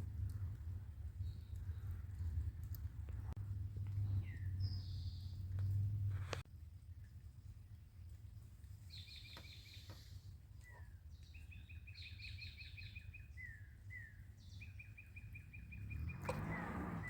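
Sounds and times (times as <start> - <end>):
steady low rumble: 0.0 - 8.8
songbirds singing: 0.1 - 6.4, 8.0 - 17.0.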